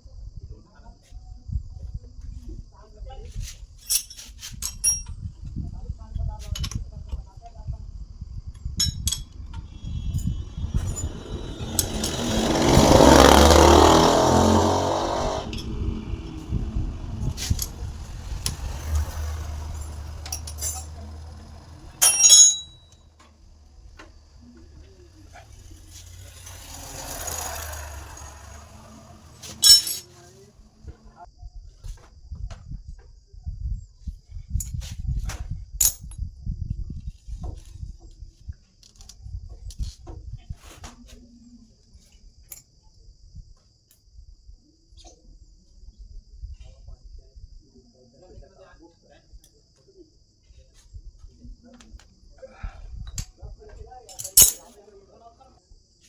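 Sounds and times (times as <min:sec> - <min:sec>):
insects chirring: 0:07.4 - 0:29.3
ringing metallic clink: 0:18.4 - 0:23.1, 0:25.6 - 0:30.1, 0:54.1 - 0:54.8
metal parts clicking: 0:19.7 - 0:20.9, 0:22.0 - 0:22.8, 0:29.2 - 0:30.1, 0:54.1 - 0:54.7.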